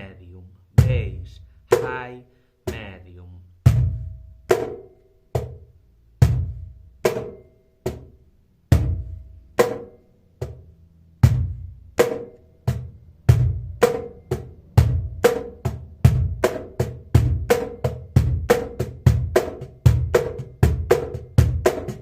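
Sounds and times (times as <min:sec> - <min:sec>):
cajon played with hands: 0:11.3 - 0:22.0.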